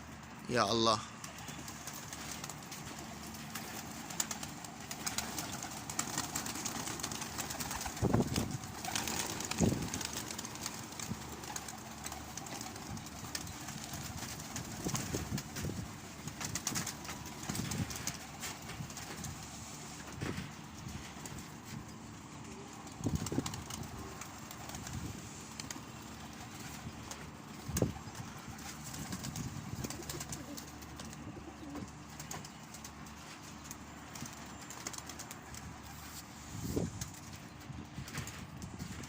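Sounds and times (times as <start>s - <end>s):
pigeons cooing: 22.5s - 32.4s.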